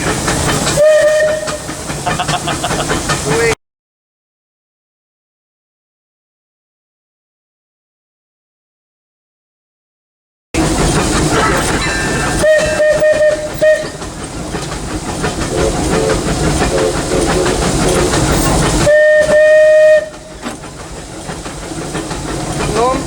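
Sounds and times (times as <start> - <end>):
locomotive running rumble: 0.0 - 3.6, 10.6 - 23.0
steam hiss: 0.0 - 3.6, 10.6 - 23.0
steam whistle toots: 0.8 - 1.8, 12.3 - 14.1, 18.8 - 20.6.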